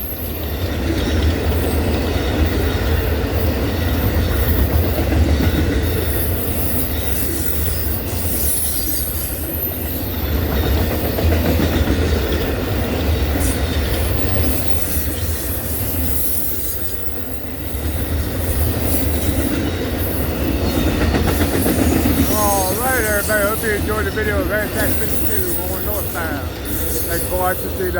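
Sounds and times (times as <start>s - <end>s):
train cars rolling past: 9.4s - 27.9s
wheels clacking over rail joints: 18.6s - 27.9s.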